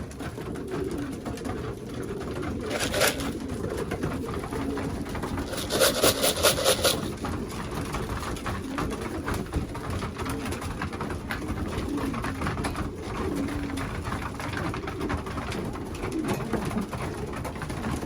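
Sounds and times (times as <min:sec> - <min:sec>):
wings fluttering: 0:00.0 - 0:11.0
pigeons cooing: 0:00.0 - 0:18.0.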